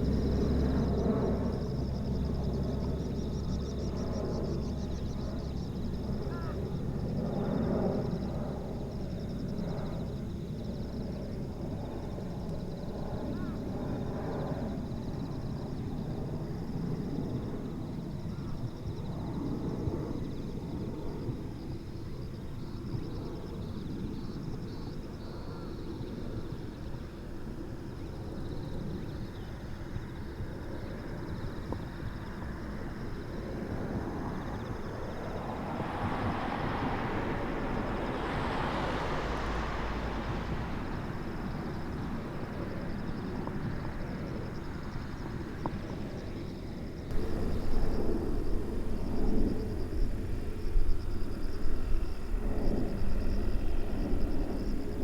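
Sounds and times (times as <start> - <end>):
jet airliner flying past: 0.0 - 55.0.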